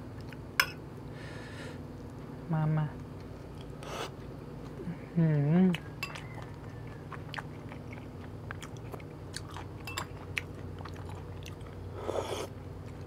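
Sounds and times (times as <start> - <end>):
steady low hum: 0.0 - 13.0
person chewing food: 5.7 - 13.0.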